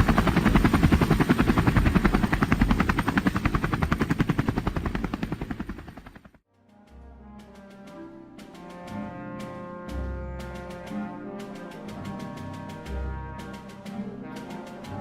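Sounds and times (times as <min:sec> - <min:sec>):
helicopter rotor chopping: 0:00.0 - 0:06.4, 0:07.5 - 0:15.0
quiet music: 0:06.5 - 0:15.0.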